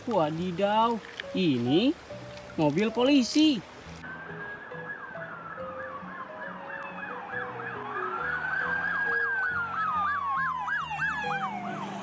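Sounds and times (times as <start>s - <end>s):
light background music: 0.0s - 12.0s
police siren yelp and wail: 4.0s - 12.0s.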